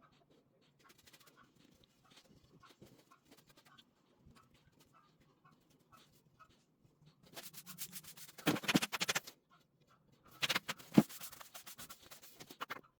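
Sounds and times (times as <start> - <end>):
broom brushing floor: 7.4 - 9.3, 10.4 - 12.8.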